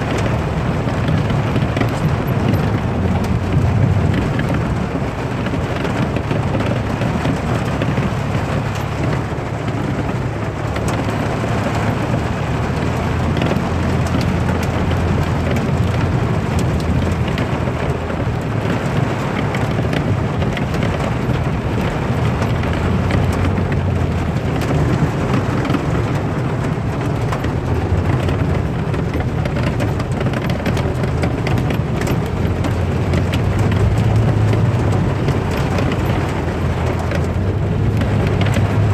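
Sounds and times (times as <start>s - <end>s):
close raindrop hits: 0.0s - 38.9s
heavy rain: 0.0s - 38.9s.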